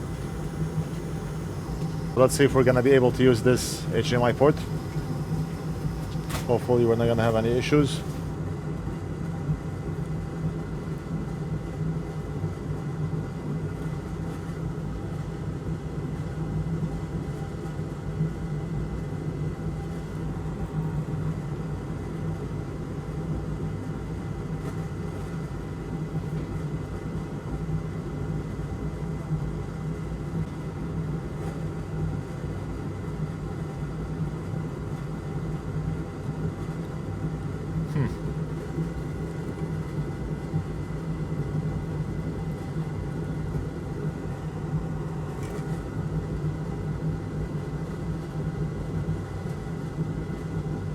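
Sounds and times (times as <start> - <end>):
thin high whine: 0.0 - 8.4
electric fan whirring hum: 0.0 - 50.9.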